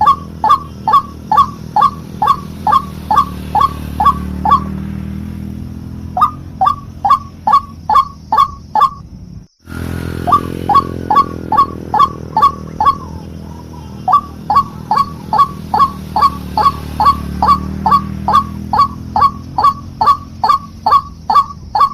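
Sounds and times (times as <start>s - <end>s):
bird lure call: 0.0s - 5.1s, 5.8s - 9.0s, 9.8s - 21.9s.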